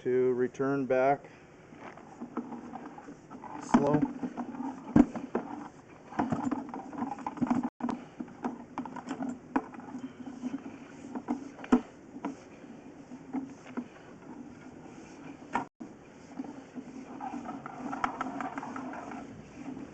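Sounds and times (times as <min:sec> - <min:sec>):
steady low hum: 0:00.0 - 0:19.9
rod scraping through pipe: 0:01.7 - 0:19.9.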